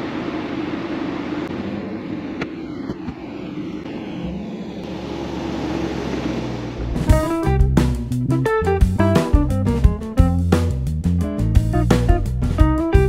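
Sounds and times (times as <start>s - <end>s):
deep engine rumble: 0.0s - 13.0s
car engine running: 0.8s - 10.5s.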